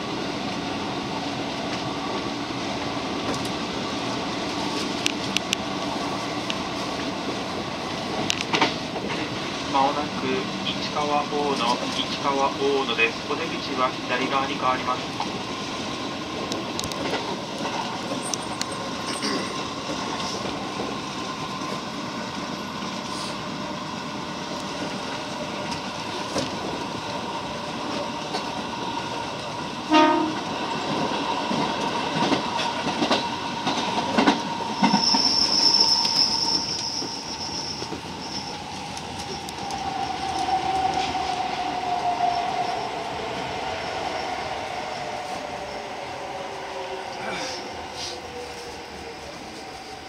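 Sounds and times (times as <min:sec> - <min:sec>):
train wheels rumbling on rail: 0:00.0 - 0:50.0
loud horn blast: 0:29.9 - 0:30.4
high wheel squeal: 0:34.7 - 0:38.8.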